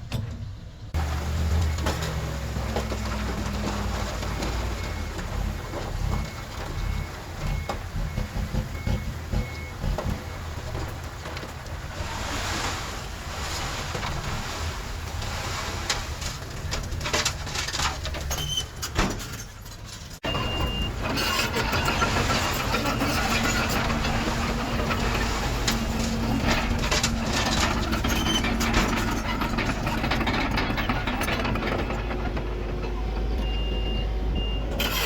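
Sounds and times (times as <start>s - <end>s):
heavy diesel machinery running: 0.9s - 12.2s, 20.2s - 35.0s.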